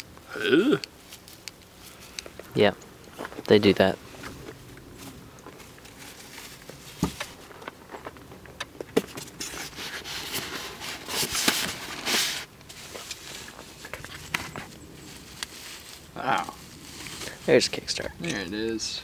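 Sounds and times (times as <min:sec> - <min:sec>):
plastic packaging rustling: 0:09.2 - 0:17.6.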